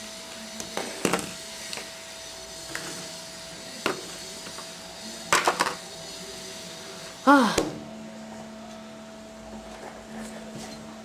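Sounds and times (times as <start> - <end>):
steady hum with high tone: 0.0 - 11.0.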